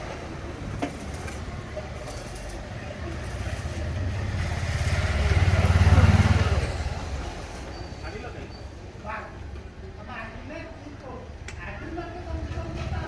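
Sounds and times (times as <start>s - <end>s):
motorcycle driving past: 3.1s - 7.7s.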